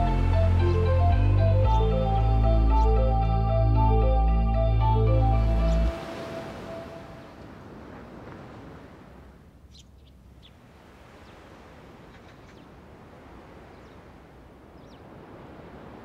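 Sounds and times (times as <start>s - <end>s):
birds chirping: 0.0s - 7.4s, 9.6s - 10.6s, 13.6s - 15.2s.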